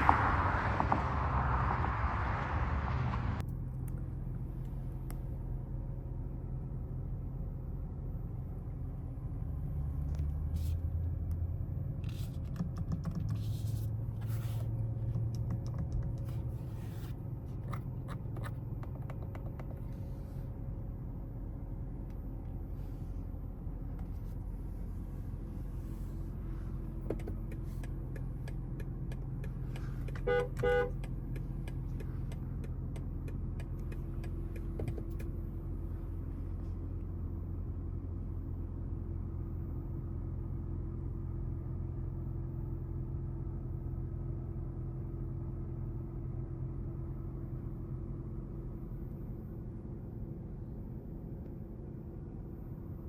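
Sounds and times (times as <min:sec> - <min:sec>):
low cabin hum: 0:00.0 - 0:41.7
car driving noise: 0:00.0 - 0:53.0.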